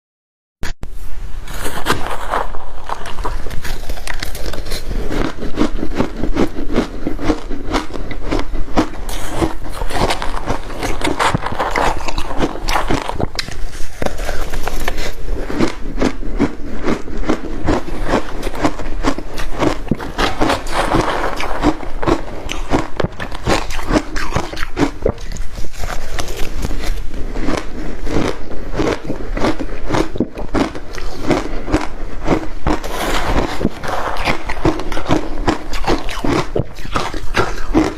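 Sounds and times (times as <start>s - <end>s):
ice being chewed: 1.5s - 37.9s.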